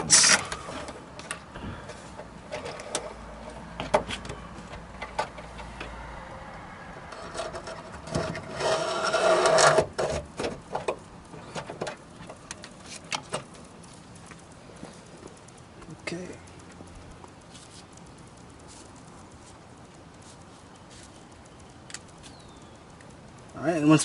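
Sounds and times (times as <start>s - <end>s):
scraping rub of cable: 7.1s - 10.2s.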